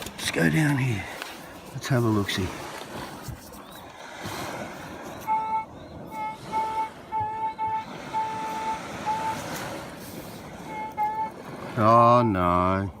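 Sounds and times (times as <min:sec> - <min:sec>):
metal detector beeps: 0:05.2 - 0:09.8.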